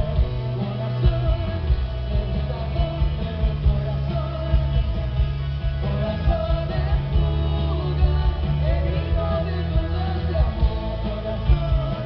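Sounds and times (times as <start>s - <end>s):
person singing: 0.0s - 5.2s, 5.8s - 12.0s
rock band playing live: 0.0s - 12.0s.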